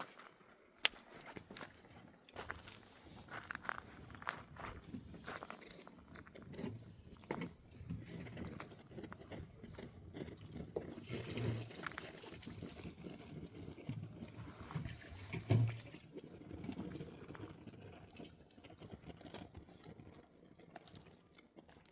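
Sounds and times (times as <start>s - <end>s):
footsteps on stony ground: 0.0s - 10.0s.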